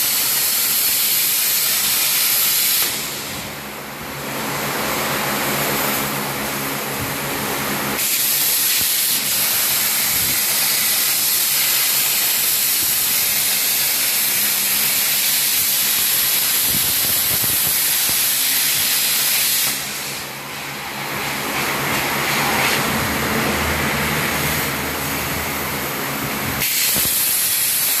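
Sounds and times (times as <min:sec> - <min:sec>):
cnc machine hissing: 0:07.6 - 0:28.0.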